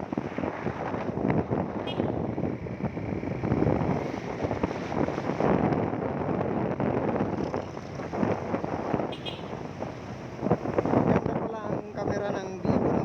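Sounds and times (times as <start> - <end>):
road noise: 0.0 - 13.0
wind buffeting microphone: 0.0 - 13.0
motorcycle engine: 7.1 - 10.3.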